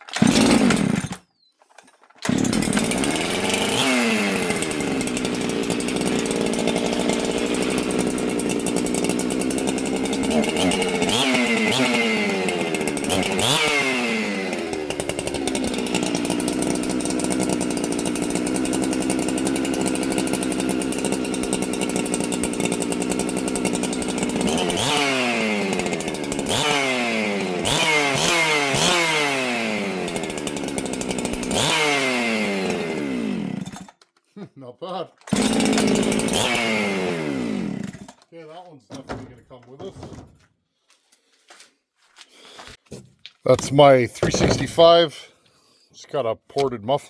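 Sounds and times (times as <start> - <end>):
chainsaw revving and idling: 0.0 - 1.3, 2.2 - 34.0, 35.2 - 38.3.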